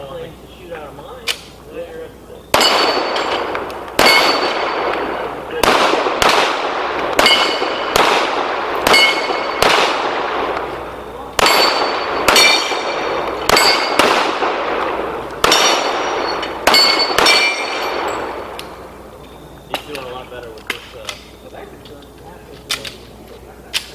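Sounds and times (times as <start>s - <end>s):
steel targets ringing: 2.4s - 20.1s
pistol shots: 2.4s - 21.4s.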